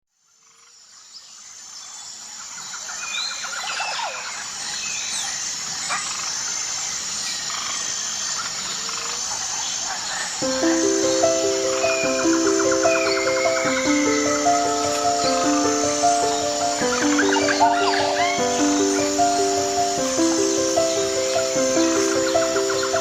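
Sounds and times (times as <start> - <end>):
high-pitched insect chorus: 0.6 - 23.0
bird chirps: 10.4 - 23.0
rapid pulsing trill call: 10.4 - 23.0
soft background hiss: 10.4 - 23.0.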